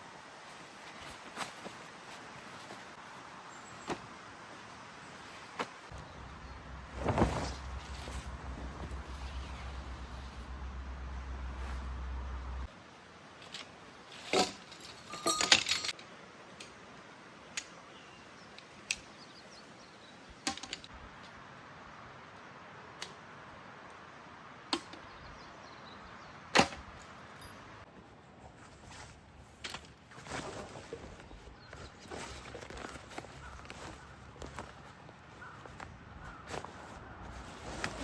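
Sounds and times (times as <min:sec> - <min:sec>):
low hum: 0:06.0 - 0:12.7.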